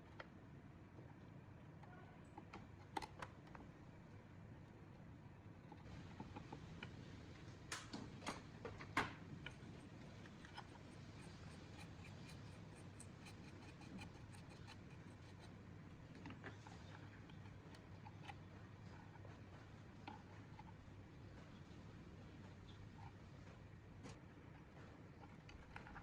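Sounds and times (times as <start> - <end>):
small clicks and taps: 1.8 - 3.7.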